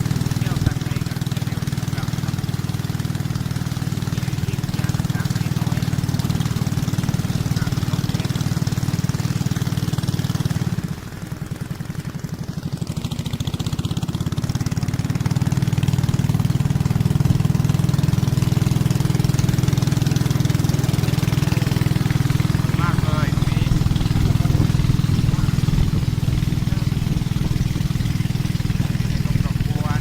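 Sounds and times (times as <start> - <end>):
motor engine running: 0.0 - 30.0.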